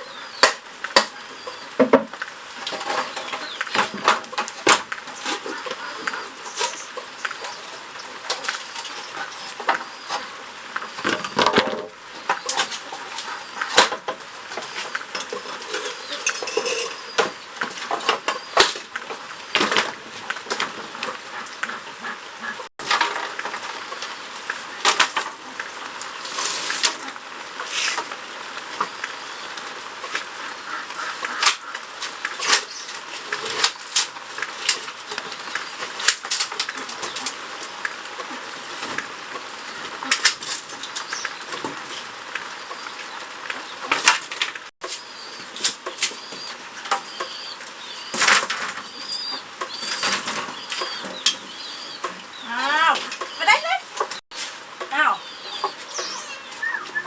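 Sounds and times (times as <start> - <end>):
rustling: 22.8 - 29.1, 30.0 - 57.0
bamboo cracking and snapping: 31.3 - 37.4
faint bird chirps: 54.9 - 57.0.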